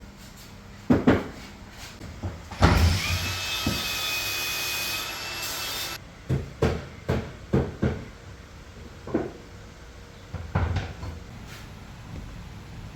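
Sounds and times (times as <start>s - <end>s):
circular saw cutting: 2.6s - 6.0s.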